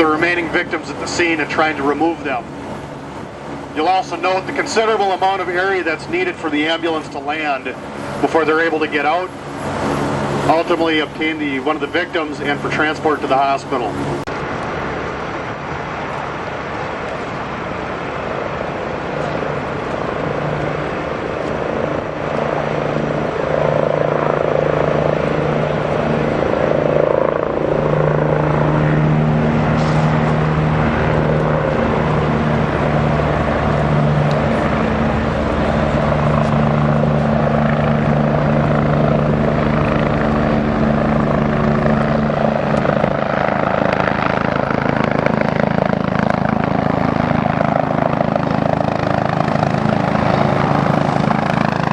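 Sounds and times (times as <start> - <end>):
helicopter rotor and engine: 0.0 - 51.9.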